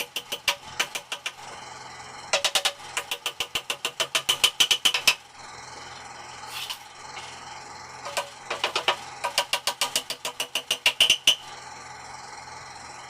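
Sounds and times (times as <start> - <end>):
rapid hammering on wood: 2.4 - 5.2, 8.1 - 11.4.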